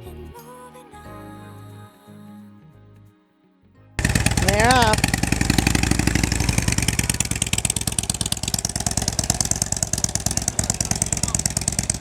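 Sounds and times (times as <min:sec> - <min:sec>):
motorcycle engine pulling away: 0:04.0 - 0:12.0.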